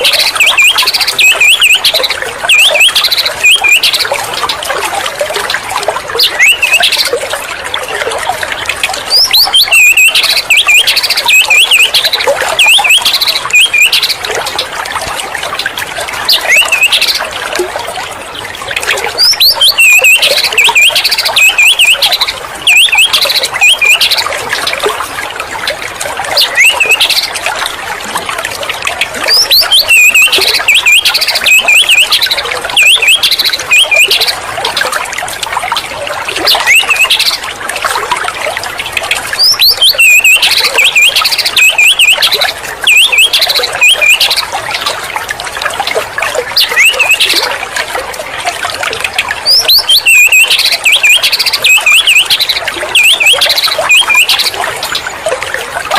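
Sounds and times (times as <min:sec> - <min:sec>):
bird singing whistled trills: 0:00.0 - 0:04.1, 0:06.2 - 0:07.1, 0:09.1 - 0:14.2, 0:16.3 - 0:17.1, 0:19.1 - 0:24.3, 0:26.4 - 0:27.2, 0:29.3 - 0:34.3, 0:36.5 - 0:37.4, 0:39.4 - 0:44.4, 0:46.6 - 0:47.4, 0:49.4 - 0:54.6.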